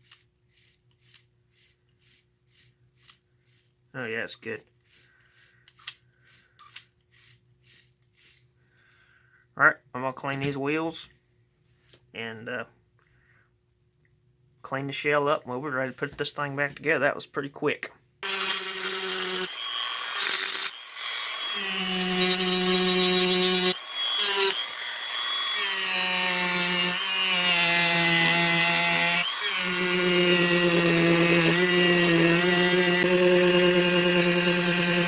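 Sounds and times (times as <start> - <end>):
electric rotary tool whining: 18.2 - 35.0.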